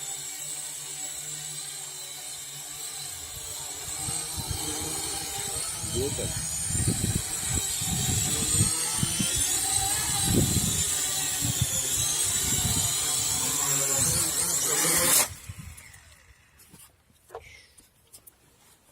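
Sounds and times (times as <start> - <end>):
drone propellers whining: 0.0 - 16.6
wind buffeting microphone: 3.8 - 14.4.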